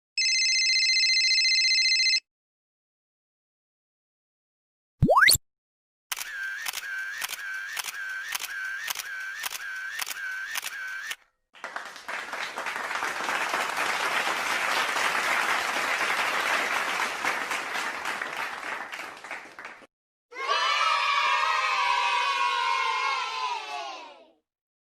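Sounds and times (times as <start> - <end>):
clicking effect with tones: 5.0 - 5.4
applause-like noise: 11.5 - 19.9.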